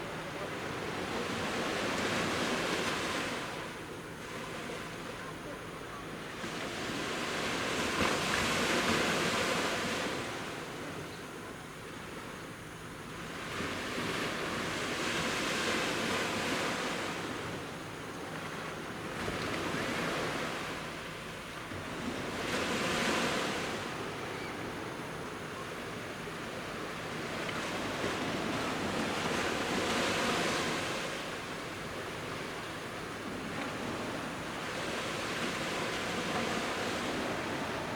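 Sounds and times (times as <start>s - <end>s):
sea waves breaking on shore: 26.2s - 37.9s.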